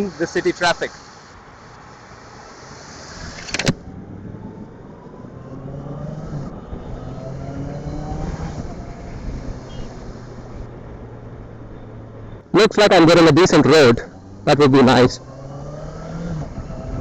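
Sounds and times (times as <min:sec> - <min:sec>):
road noise: 0:00.0 - 0:17.0
motorcycle engine accelerating: 0:03.2 - 0:10.7, 0:14.0 - 0:17.0.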